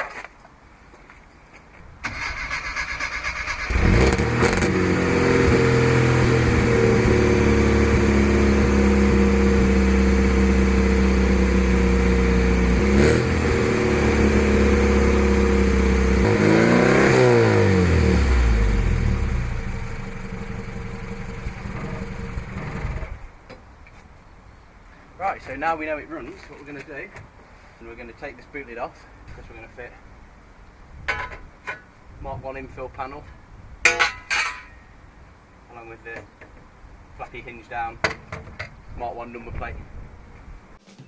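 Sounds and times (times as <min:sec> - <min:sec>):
engine cranking on starter: 0:02.0 - 0:04.7
car engine running and revving: 0:03.7 - 0:23.2.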